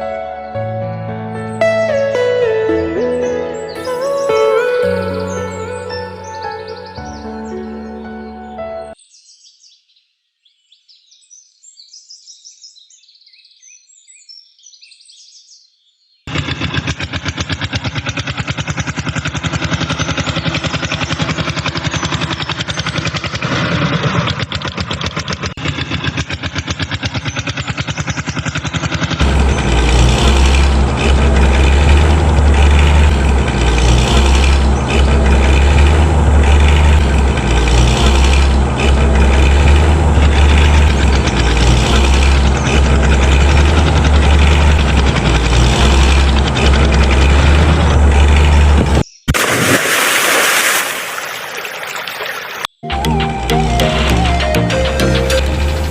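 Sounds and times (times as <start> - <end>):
heavy vehicle engine rattling: 1.5 - 8.0, 16.3 - 49.0, 53.0 - 55.9.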